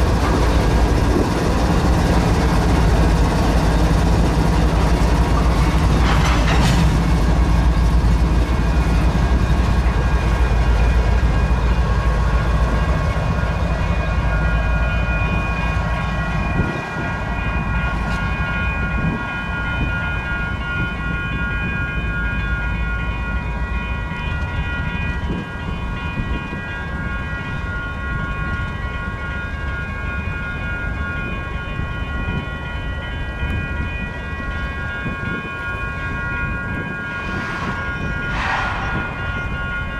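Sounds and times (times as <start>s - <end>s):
freight cars rolling rumble: 0.0s - 11.0s, 36.7s - 39.9s
crossing warning bell ringing: 0.0s - 39.9s.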